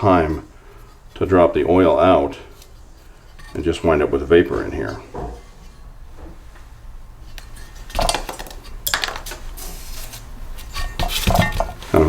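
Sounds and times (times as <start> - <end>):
metal parts clattering on workbench: 7.4 - 9.8, 10.7 - 12.0.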